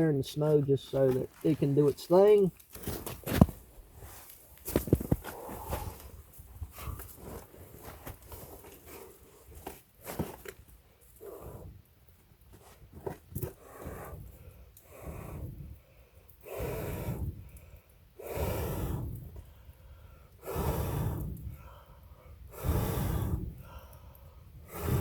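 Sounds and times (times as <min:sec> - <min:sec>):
man breathing heavily: 0:05.2 - 0:07.9, 0:13.4 - 0:25.0.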